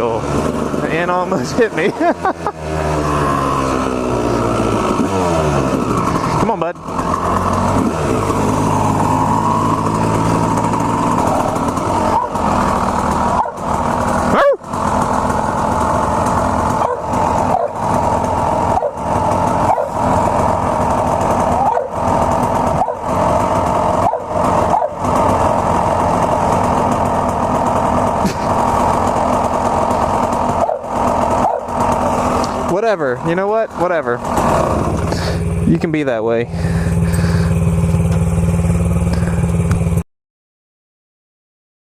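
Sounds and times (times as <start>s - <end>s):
two-stroke dirt bike engine: 0.0s - 40.0s.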